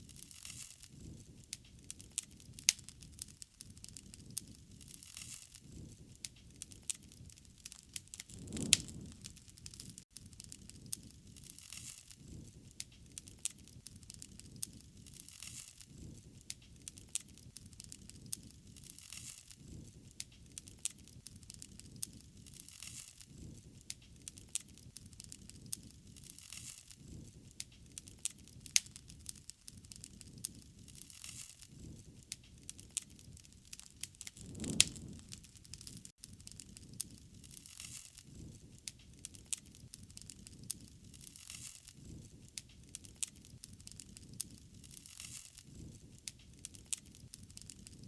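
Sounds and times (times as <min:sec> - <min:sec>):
fire popping and snapping: 0:00.0 - 0:48.0
low rumble of flame: 0:00.0 - 0:48.0
wood fire crackling: 0:00.0 - 0:48.0.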